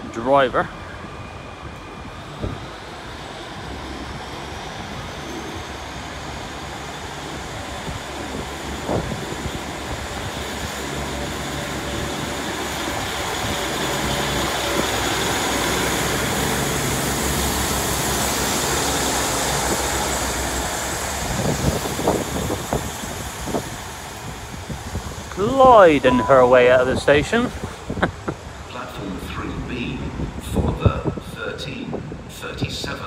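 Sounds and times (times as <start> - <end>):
train wheels on rails: 0.0 - 25.5
diesel train engines: 0.0 - 33.0.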